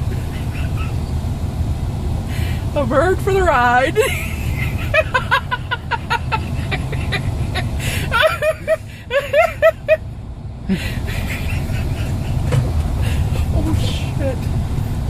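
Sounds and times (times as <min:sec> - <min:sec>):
car driving rumble: 0:00.0 - 0:15.0
woman laughing: 0:03.9 - 0:10.0, 0:10.7 - 0:13.9.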